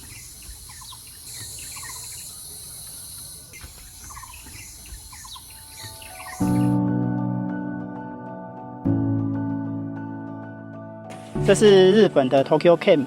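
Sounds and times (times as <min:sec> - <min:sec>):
bird chirps and trills: 0:00.0 - 0:06.8
insect chorus: 0:00.0 - 0:06.8.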